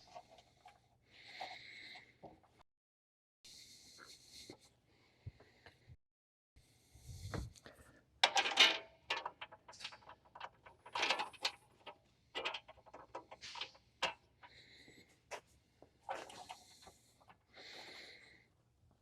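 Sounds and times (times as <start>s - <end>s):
clicks and knocks of metal parts: 8.2s - 14.6s.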